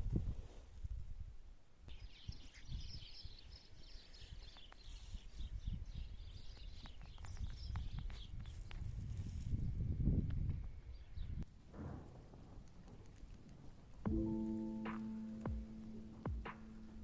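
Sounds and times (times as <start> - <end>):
small birds twittering: 1.9 - 8.9
irregular low rumble: 11.8 - 17.0.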